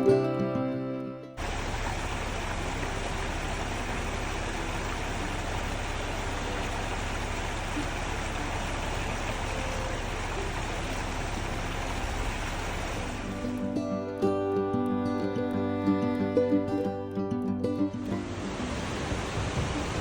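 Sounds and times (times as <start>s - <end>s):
car driving on road: 1.4s - 13.7s.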